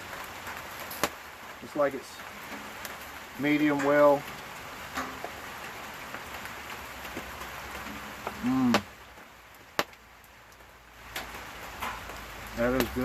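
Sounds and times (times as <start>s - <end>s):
rain falling: 0.0s - 13.0s
man humming: 8.4s - 8.9s.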